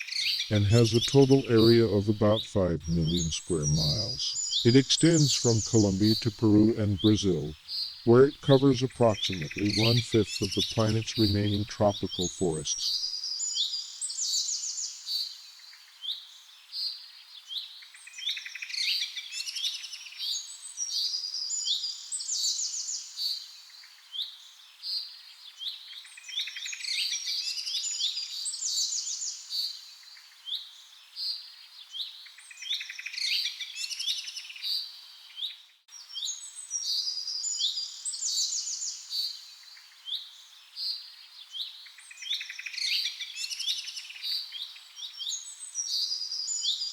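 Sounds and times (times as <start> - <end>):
birds chirping and singing: 0.0 - 13.0.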